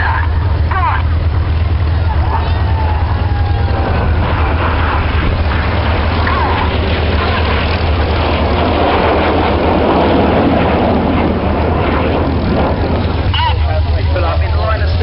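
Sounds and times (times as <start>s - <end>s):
aircraft engines rushing past: 0.0s - 15.0s.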